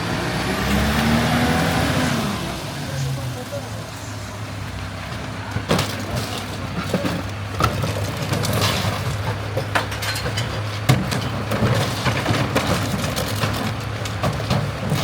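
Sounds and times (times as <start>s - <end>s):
garbage truck diesel engine running: 0.0s - 15.0s
glass and containers clattering: 5.6s - 15.0s.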